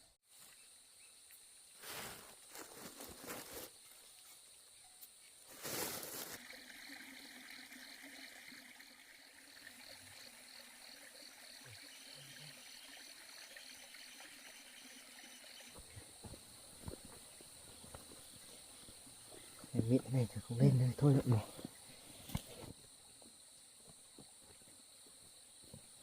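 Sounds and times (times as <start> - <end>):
insect chorus buzzing: 0.3 - 26.0
pulsing insect chirp: 0.4 - 26.0
rustling noise: 1.8 - 4.5, 5.4 - 6.4.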